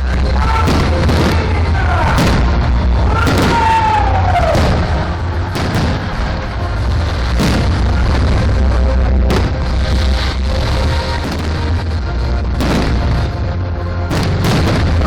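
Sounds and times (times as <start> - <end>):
steady low rumble: 0.0 - 15.0
firework bangs: 0.5 - 8.6, 9.2 - 15.0
whistling fireworks: 0.7 - 8.0, 12.6 - 13.3, 14.1 - 15.0.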